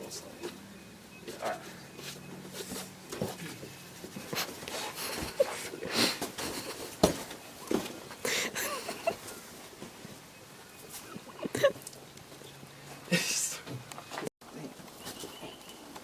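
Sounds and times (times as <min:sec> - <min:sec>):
person breathing and sniffing: 0:04.4 - 0:06.3.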